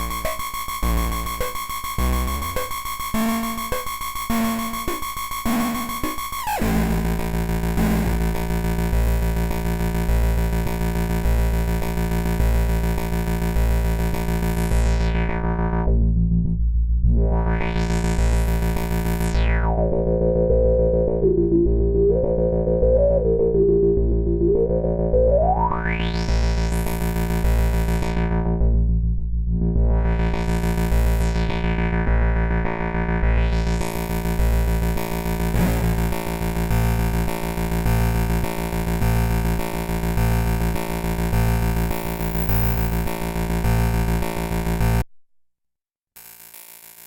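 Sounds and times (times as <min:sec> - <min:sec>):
buzzing synth tone cluster: 0:00.0 - 0:16.0, 0:33.0 - 0:45.0.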